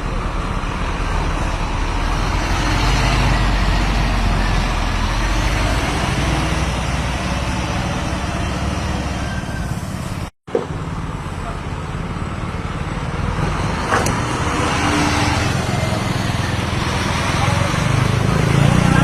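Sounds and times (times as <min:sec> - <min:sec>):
bus engine hum: 0:00.0 - 0:19.0
road and tyre noise: 0:00.0 - 0:19.0.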